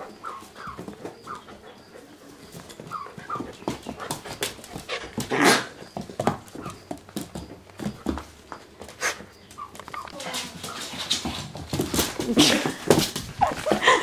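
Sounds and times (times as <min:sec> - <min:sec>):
young coyote whimpering: 0:09.5 - 0:10.3.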